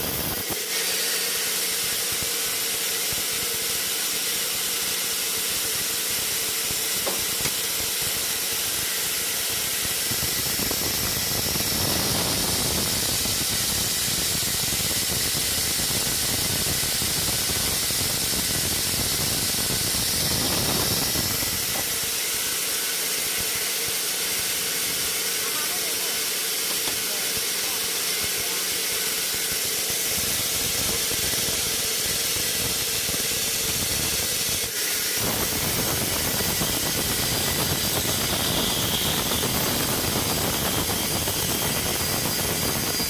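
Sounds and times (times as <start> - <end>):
sawmill machinery hissing: 0.0 - 43.0.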